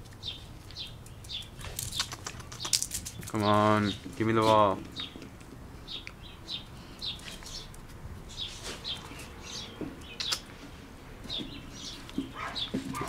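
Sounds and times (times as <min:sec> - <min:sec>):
small birds chirping: 0:00.1 - 0:13.0
sharp clicks: 0:01.2 - 0:03.4.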